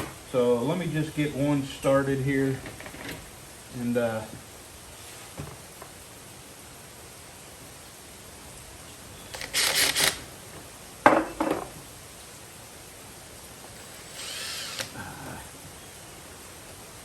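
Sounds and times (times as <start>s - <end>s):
power drill driving a screw: 9.3s - 10.3s, 13.8s - 14.9s.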